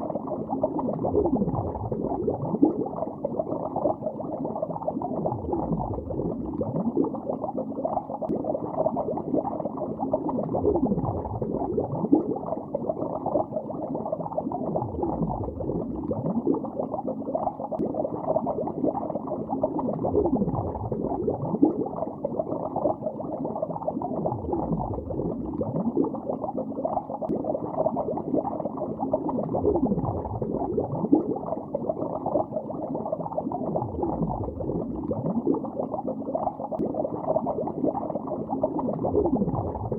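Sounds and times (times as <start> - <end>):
underwater bubbling: 0.0 - 39.9.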